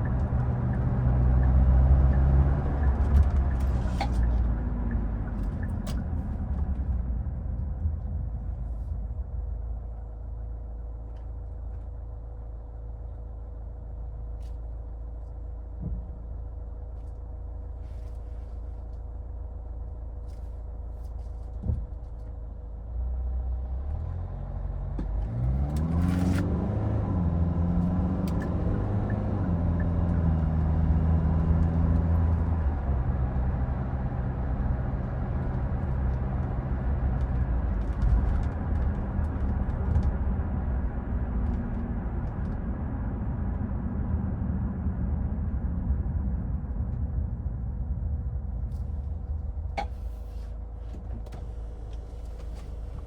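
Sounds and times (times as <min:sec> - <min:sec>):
road noise: 0:00.0 - 0:53.0
car engine idling: 0:47.9 - 0:53.0.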